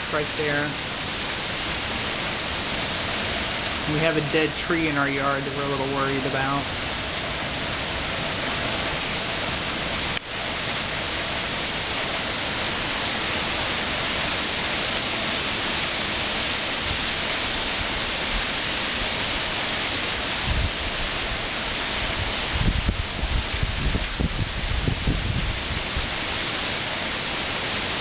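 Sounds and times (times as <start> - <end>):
heavy rain and wind: 0.0 - 28.0
wind buffeting microphone: 20.3 - 26.4.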